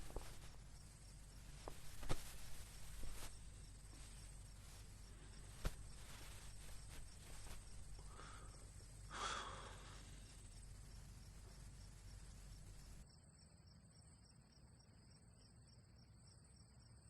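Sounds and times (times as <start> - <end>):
short rustle: 0.0 - 13.0
crickets chirring: 0.0 - 17.0.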